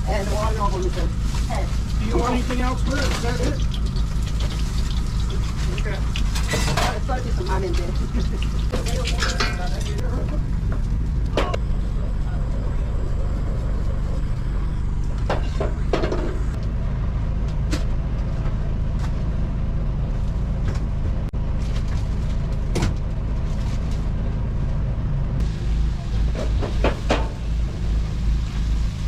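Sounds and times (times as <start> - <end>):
low mechanical hum: 0.0 - 29.0
containers and doors clattering: 2.0 - 10.8.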